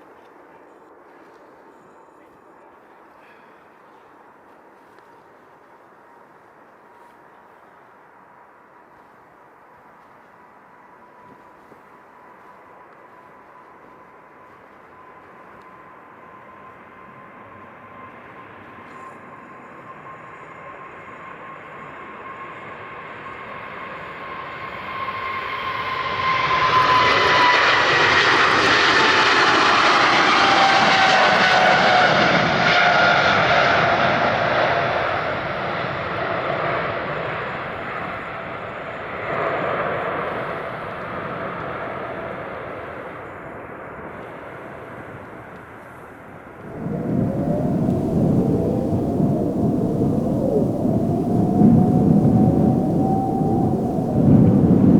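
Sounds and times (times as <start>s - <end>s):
jet engine whine: 0.0s - 54.9s
jet aircraft passing: 10.4s - 45.5s, 46.3s - 54.9s.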